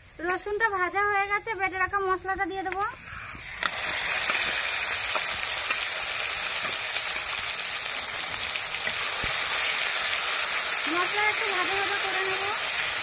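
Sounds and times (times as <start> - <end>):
paste sizzling in hot oil: 3.0 - 13.0.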